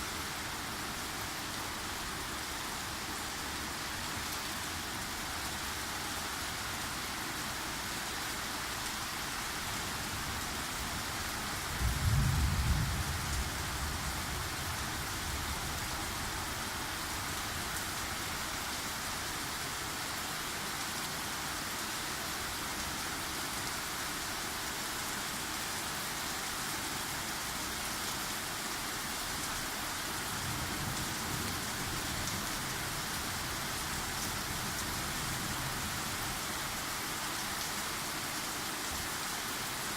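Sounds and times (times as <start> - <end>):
steady rain falling: 0.0 - 39.9
thunder rumble: 11.8 - 14.3.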